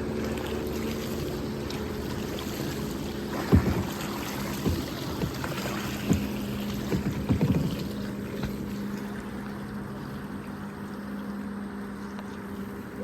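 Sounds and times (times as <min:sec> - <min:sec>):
water noise: 0:00.0 - 0:13.0
paddle knocking against hull: 0:00.8 - 0:09.1.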